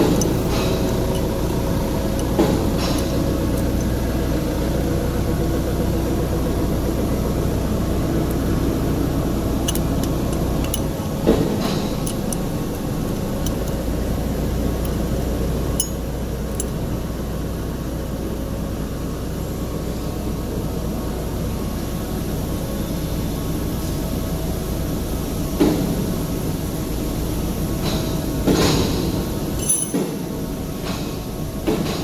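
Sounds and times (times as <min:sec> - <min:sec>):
factory machinery humming: 0:00.0 - 0:17.7.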